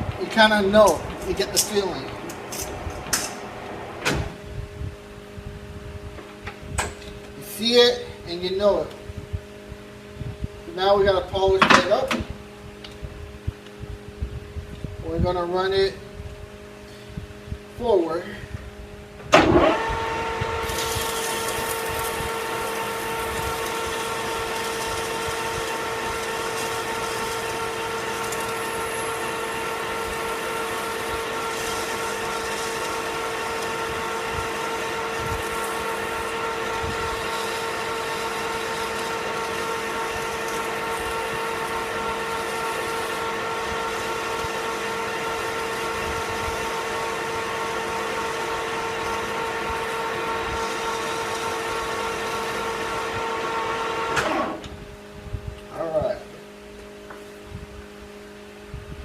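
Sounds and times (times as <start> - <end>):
metal lathe whining: 19.4 - 54.7.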